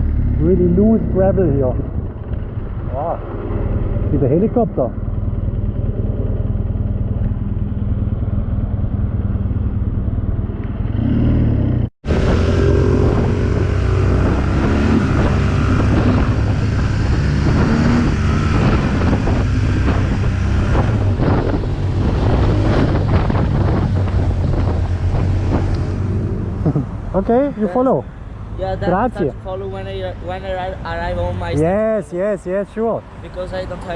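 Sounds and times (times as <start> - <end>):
motorcycle engine running: 0.0 - 26.8
wind over microphone: 1.1 - 4.3, 9.8 - 28.1.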